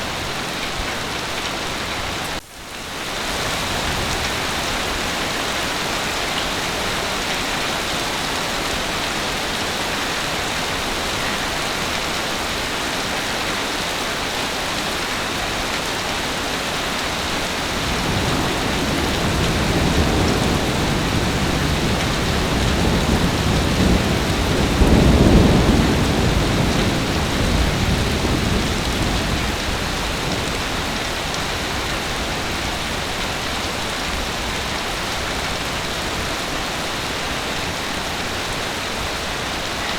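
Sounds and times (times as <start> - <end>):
heavy rain: 0.0 - 39.9
thunder rolling: 17.6 - 32.8.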